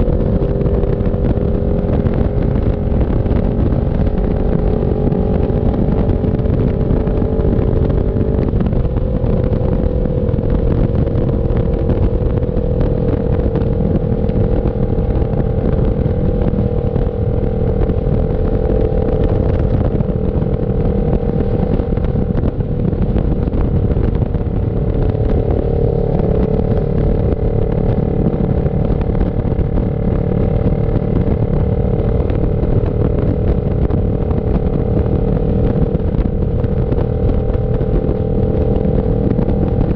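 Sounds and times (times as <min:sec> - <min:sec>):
motorcycle engine cruising: 0:00.0 - 0:39.9
wind rushing over microphone: 0:00.0 - 0:39.9.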